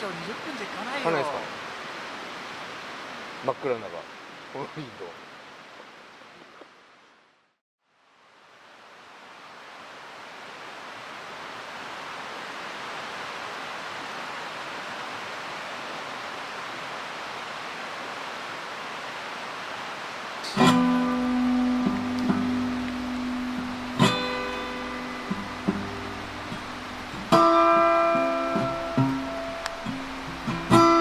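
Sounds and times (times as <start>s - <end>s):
acoustic guitar strummed: 20.5s - 31.0s.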